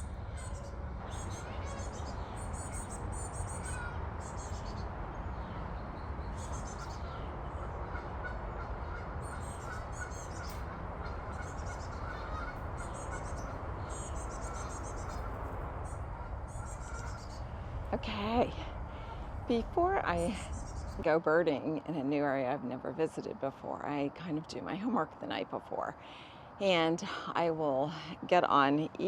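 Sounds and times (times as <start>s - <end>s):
small songbirds chirping: 0.0s - 7.9s, 8.9s - 17.7s, 18.3s - 21.1s
highway traffic rumble: 0.0s - 29.0s.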